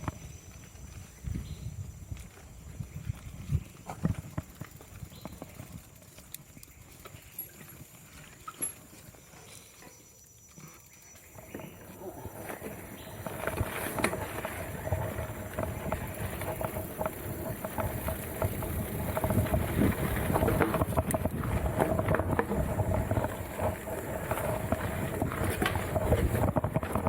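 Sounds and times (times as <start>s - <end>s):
bike clicks and rattles: 2.1s - 9.1s, 11.2s - 27.0s
tyre and wind rumble: 11.4s - 27.0s.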